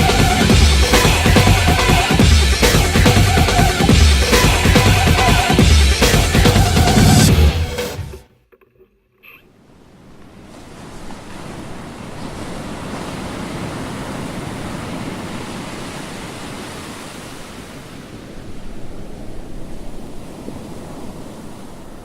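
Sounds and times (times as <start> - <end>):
sea water rushing: 0.0 - 8.2, 9.7 - 22.0
wind: 8.4 - 22.0.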